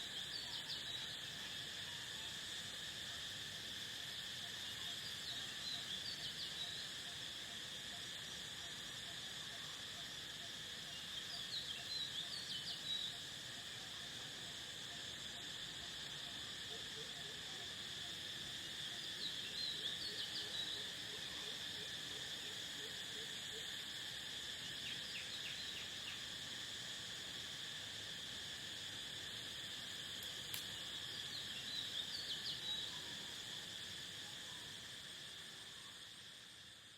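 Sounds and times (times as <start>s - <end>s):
crickets trilling: 0.0s - 36.9s.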